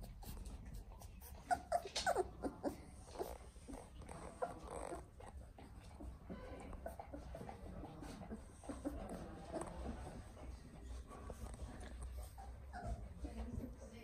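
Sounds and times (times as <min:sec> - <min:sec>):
puppies whimpering and squeaking: 0:00.0 - 0:10.6, 0:11.3 - 0:13.4.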